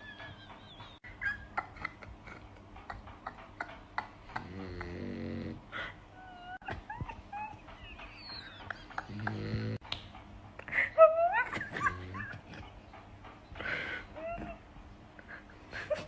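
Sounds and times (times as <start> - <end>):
dogs snoring: 2.7 - 6.0, 8.1 - 9.8.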